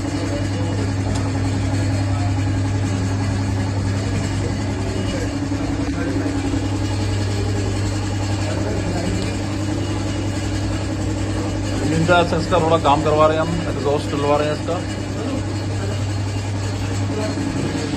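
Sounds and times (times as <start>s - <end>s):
motorcycle engine idling: 0.0s - 17.9s.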